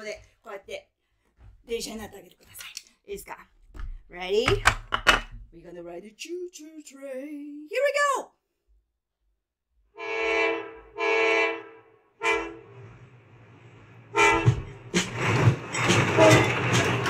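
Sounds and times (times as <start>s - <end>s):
train whistle tooting: 10.0s - 12.8s, 14.1s - 14.6s
upbeat music with drums: 14.3s - 17.0s.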